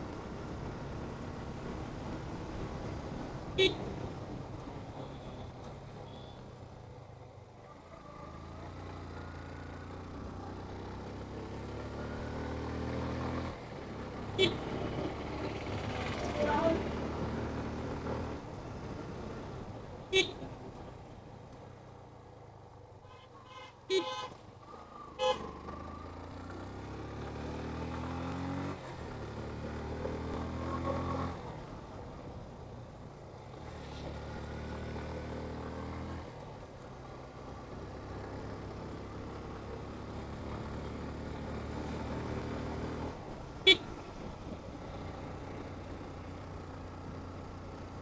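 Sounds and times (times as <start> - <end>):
vehicle horn honks: 3.6 - 3.9, 14.4 - 14.8, 20.1 - 20.5, 23.1 - 24.4, 25.2 - 25.5, 43.6 - 44.0.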